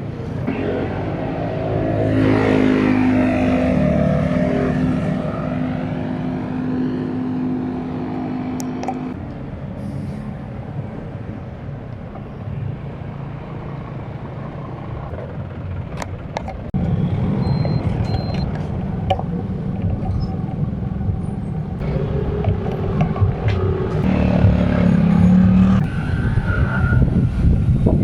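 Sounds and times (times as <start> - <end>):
road traffic rumble: 0.0 - 28.0
wind noise: 14.2 - 28.0.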